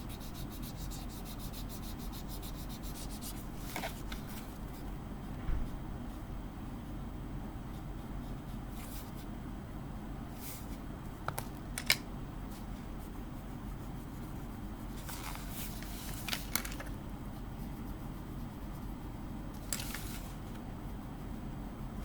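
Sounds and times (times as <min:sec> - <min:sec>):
pencil shading on paper: 0:00.0 - 0:04.0
steady low hum: 0:00.0 - 0:22.0.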